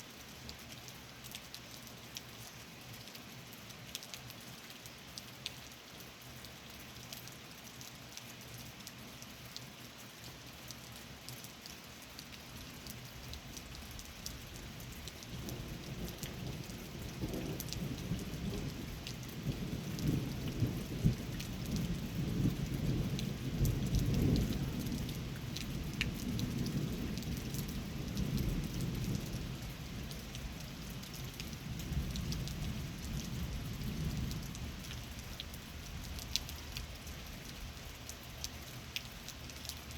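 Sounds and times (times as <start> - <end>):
steady rain: 0.0 - 39.9
low roll of thunder: 15.4 - 29.6.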